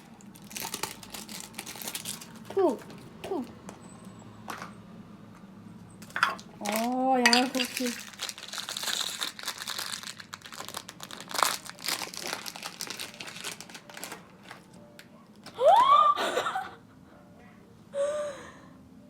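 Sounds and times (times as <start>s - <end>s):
wrapper crinkling and tearing: 0.0s - 3.1s, 6.0s - 15.6s.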